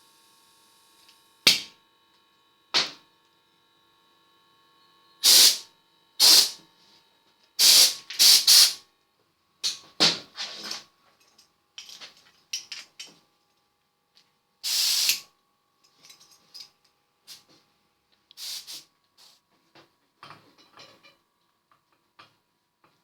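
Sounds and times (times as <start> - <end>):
compressed air hissing: 5.2 - 5.6, 6.2 - 6.6, 7.6 - 8.8, 14.6 - 15.3, 18.4 - 19.4.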